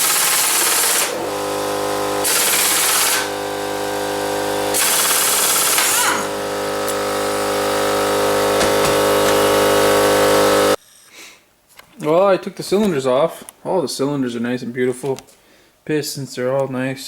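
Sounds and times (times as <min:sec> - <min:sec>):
impact wrench hammering: 0:00.0 - 0:10.8
steady machine hum: 0:00.0 - 0:10.8.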